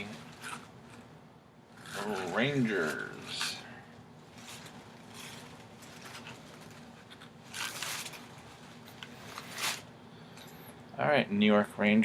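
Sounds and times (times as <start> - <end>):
faint scraping and rustling: 1.8 - 9.9
sliding rustle: 4.3 - 9.9.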